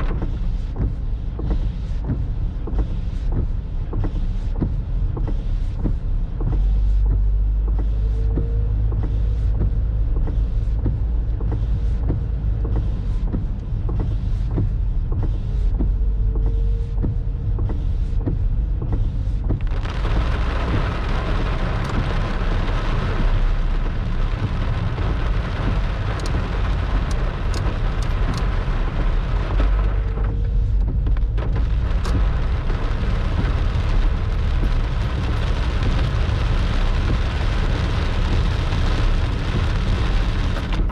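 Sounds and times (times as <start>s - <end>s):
heavy rain downpour: 18.8s - 40.9s
deep low thunder rumble: 19.4s - 40.9s.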